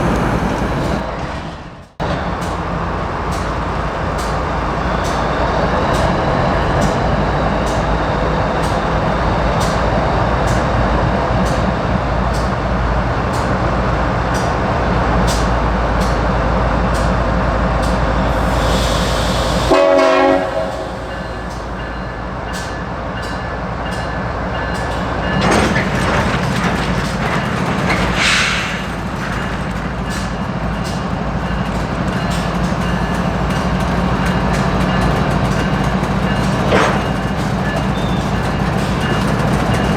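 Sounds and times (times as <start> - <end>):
wheels clicking over rail joints: 0.0 - 7.9, 22.5 - 39.9
freight train rumbling: 0.0 - 39.9
hiss and clatter: 24.8 - 39.9.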